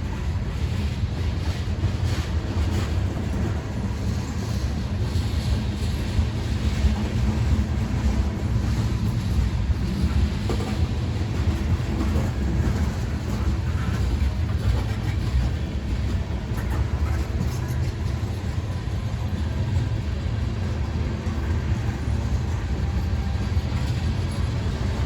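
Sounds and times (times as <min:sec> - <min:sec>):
freight train wheels rumbling: 0:00.0 - 0:25.0.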